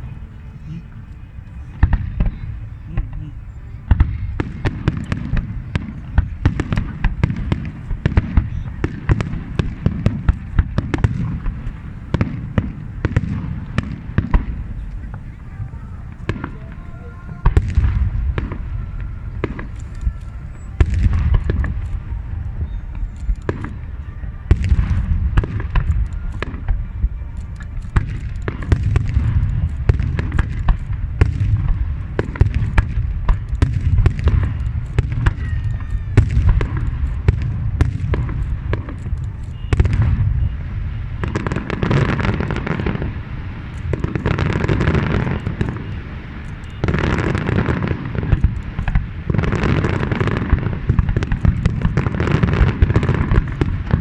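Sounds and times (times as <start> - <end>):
fireworks booming: 0.0 - 54.0
fireworks crackling: 0.0 - 54.0.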